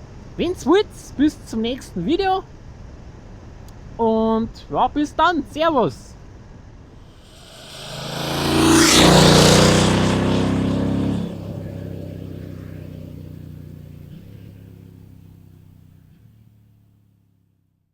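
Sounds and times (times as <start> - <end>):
motorcycle passing by: 7.1 - 16.6.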